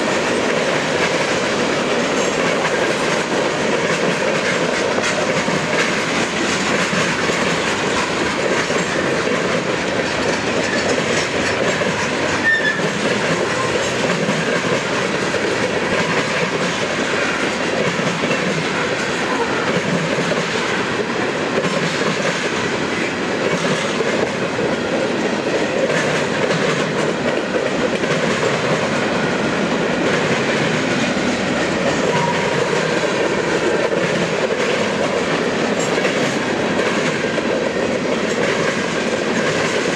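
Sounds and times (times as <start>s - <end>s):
freight train wheels rattling: 0.0s - 39.9s.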